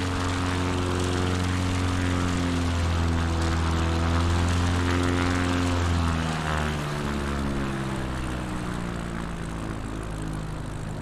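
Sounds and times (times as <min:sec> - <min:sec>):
rc plane motor and propeller droning: 0:00.0 - 0:11.0.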